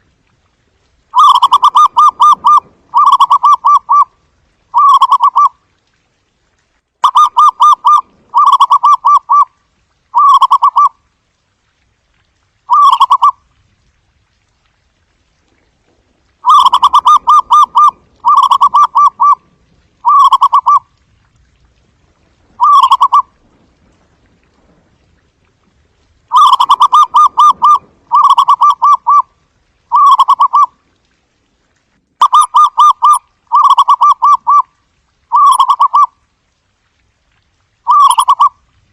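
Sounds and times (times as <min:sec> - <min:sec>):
dove cooing: 0:01.2 - 0:04.1, 0:04.8 - 0:05.5, 0:07.0 - 0:09.5, 0:16.4 - 0:19.4, 0:20.0 - 0:20.8, 0:22.6 - 0:23.3, 0:26.3 - 0:29.3, 0:29.9 - 0:30.7, 0:35.3 - 0:36.1, 0:37.9 - 0:38.5.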